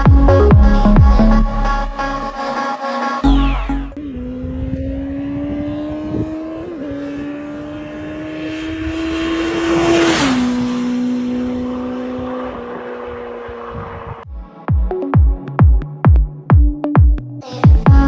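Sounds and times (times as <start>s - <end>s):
motorcycle engine accelerating: 3.2s - 14.3s.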